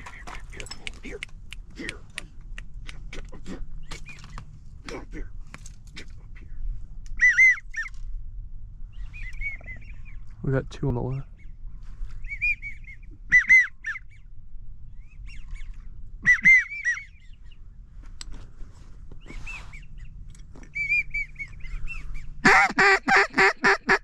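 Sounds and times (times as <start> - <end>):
wigeon whistles: 12.2 - 14.0, 16.2 - 17.1, 20.7 - 22.0
duck quacks: 22.4 - 24.0.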